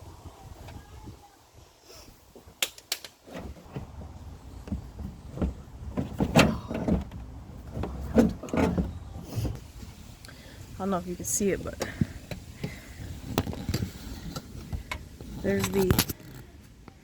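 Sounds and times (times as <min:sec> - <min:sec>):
plastic clunks and scrapes: 0:03.3 - 0:09.6, 0:11.8 - 0:16.5.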